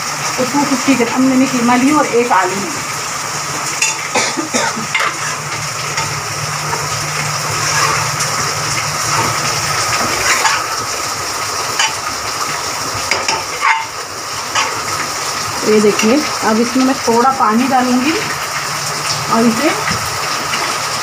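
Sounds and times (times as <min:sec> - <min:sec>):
meat sizzling in a pot: 0:00.0 - 0:21.0
metal spoon scraping a pot: 0:07.6 - 0:08.3, 0:10.0 - 0:10.8, 0:13.1 - 0:14.8.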